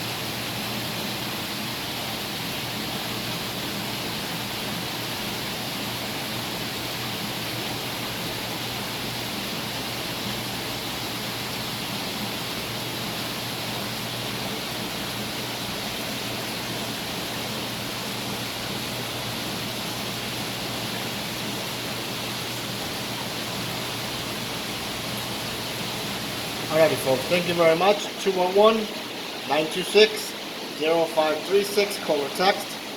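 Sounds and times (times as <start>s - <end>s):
aquarium water rushing: 0.0s - 32.9s.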